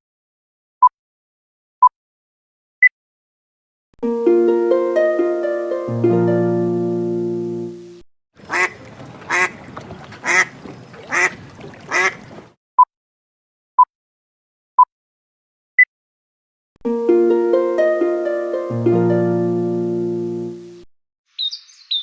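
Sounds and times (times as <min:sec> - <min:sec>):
bird call: 0:08.4 - 0:12.5, 0:21.4 - 0:22.0.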